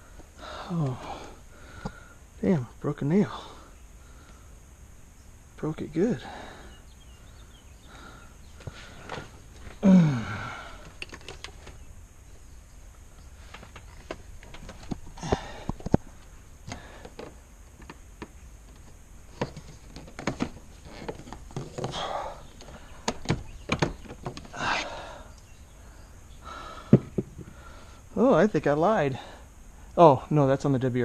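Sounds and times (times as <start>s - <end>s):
clicks and knocks of parts: 10.8s - 11.8s, 13.5s - 24.6s.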